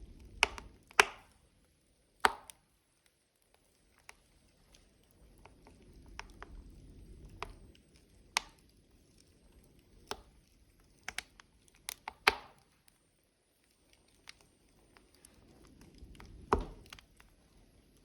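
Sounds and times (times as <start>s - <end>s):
burning logs crackling: 0.0s - 18.0s.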